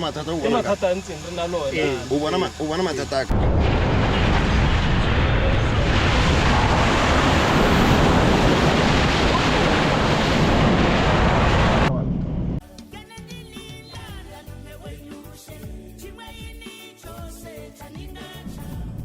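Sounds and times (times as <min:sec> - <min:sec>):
loud low rushing noise: 0:03.3 - 0:12.6.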